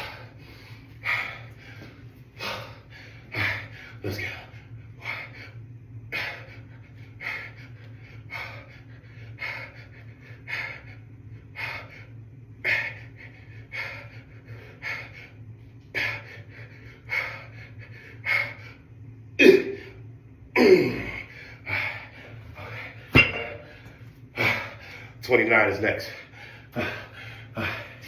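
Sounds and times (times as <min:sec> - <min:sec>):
man breathing hard: 0:00.0 - 0:18.9, 0:20.6 - 0:25.2, 0:26.0 - 0:28.0
steady low hum: 0:00.0 - 0:28.0
man gasping: 0:26.2 - 0:28.0.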